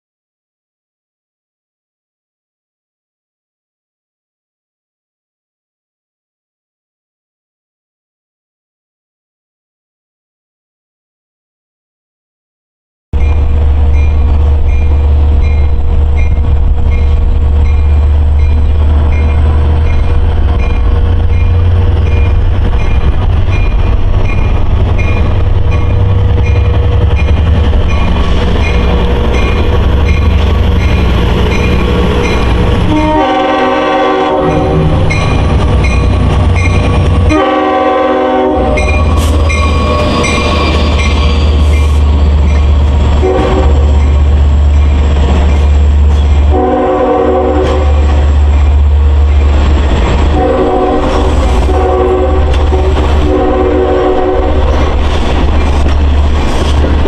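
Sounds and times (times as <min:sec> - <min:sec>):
train passing with low rumble: 0:13.2 - 0:57.0
train horn blasts: 0:32.0 - 0:35.1, 0:37.2 - 0:40.7, 0:43.2 - 0:43.9, 0:46.5 - 0:48.2, 0:50.3 - 0:54.8.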